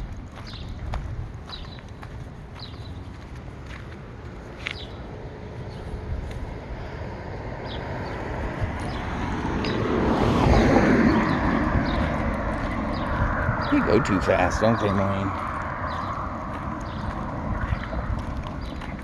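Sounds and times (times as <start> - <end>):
car driving past fast: 6.7 - 18.6.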